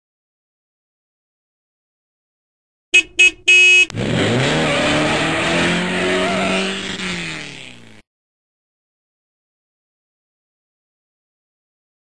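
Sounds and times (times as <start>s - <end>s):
car horn honking: 2.9s - 6.8s
car engine revving: 3.7s - 8.0s.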